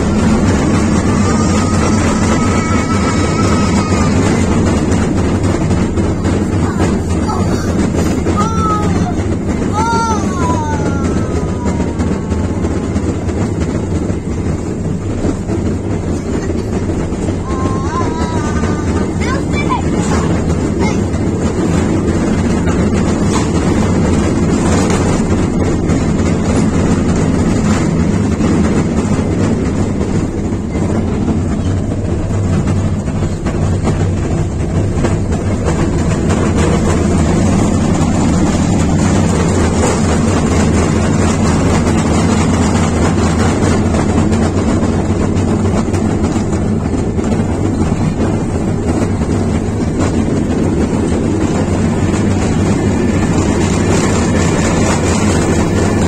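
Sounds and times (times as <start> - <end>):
ride-on train engine drone: 0.0 - 56.0.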